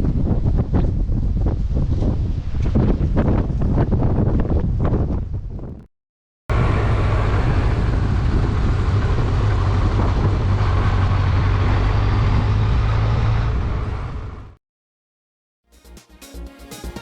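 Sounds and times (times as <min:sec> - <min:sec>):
motorcycle engine and exhaust: 0:06.5 - 0:14.6.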